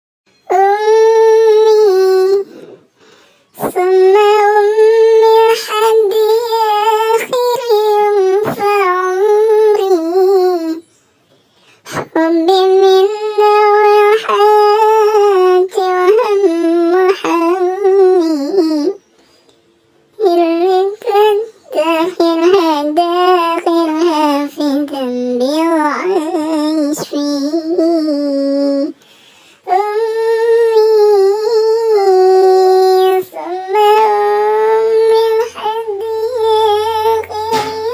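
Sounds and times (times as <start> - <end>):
high voice singing: 0.3 - 2.9, 3.5 - 11.0, 11.9 - 19.1, 20.2 - 29.0, 29.6 - 37.9
high-pitched voice chanting: 0.4 - 2.8, 29.7 - 37.9.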